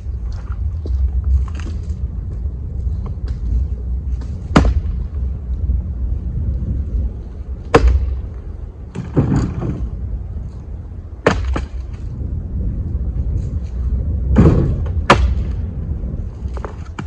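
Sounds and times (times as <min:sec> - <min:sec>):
wind buffeting microphone: 0:00.0 - 0:17.0
firewood clattering: 0:08.9 - 0:10.0, 0:11.2 - 0:12.1, 0:16.4 - 0:17.0.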